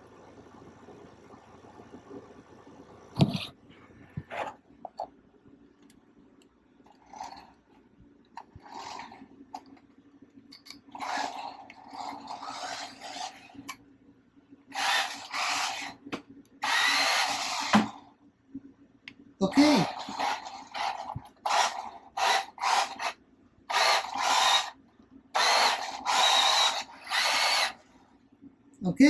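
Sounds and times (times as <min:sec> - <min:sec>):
toy truck electric motor whirring: 0:07.0 - 0:07.5, 0:08.5 - 0:09.7, 0:10.6 - 0:13.8, 0:14.7 - 0:16.0, 0:16.6 - 0:18.1, 0:19.6 - 0:24.8, 0:25.4 - 0:27.9.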